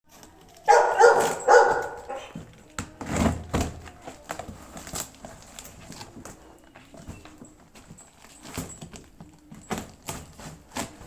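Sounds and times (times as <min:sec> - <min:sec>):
dog barking: 0:00.6 - 0:02.4.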